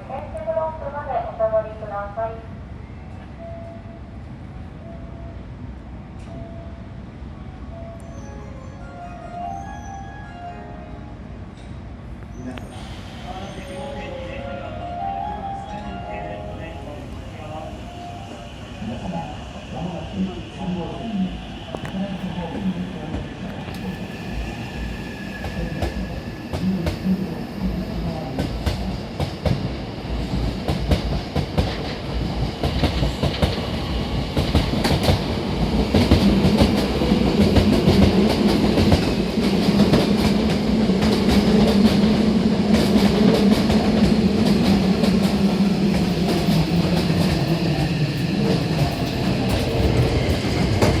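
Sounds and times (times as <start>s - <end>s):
electric train pulling out: 12.4s - 21.9s.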